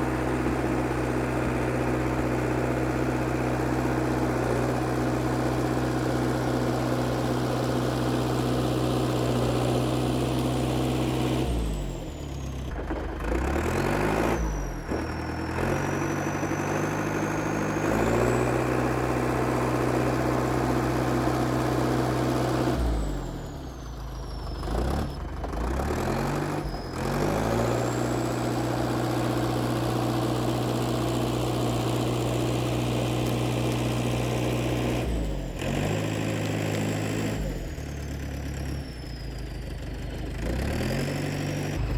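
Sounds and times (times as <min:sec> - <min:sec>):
bulldozer diesel engine running: 0:00.0 - 0:41.9.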